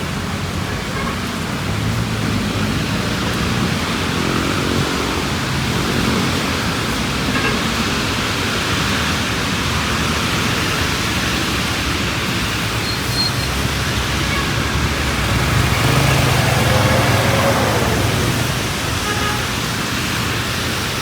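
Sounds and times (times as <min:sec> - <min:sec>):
rain on a street: 0:00.0 - 0:21.0
road traffic: 0:00.0 - 0:21.0
vehicle engine rumble: 0:08.6 - 0:21.0.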